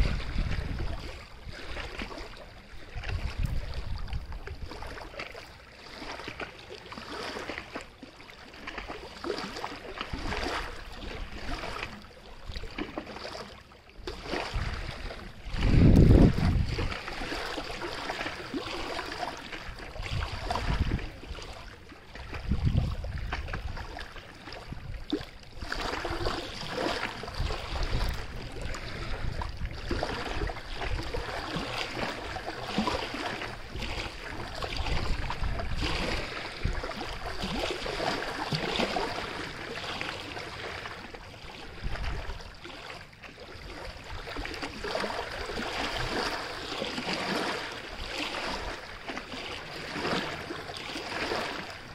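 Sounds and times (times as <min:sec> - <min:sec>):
wind rumble on microphone: 0:00.0 - 0:05.2, 0:14.0 - 0:42.9
water rushing: 0:00.0 - 0:07.8.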